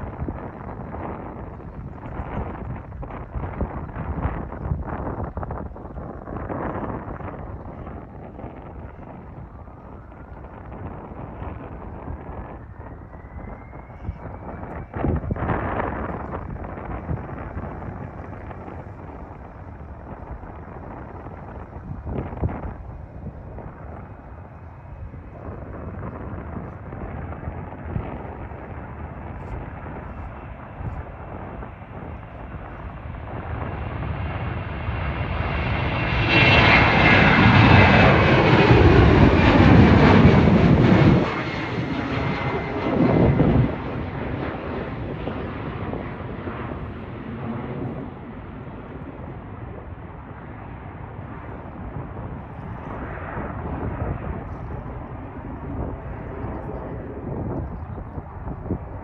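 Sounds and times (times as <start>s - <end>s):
jet airliner passing by: 0.0s - 59.0s.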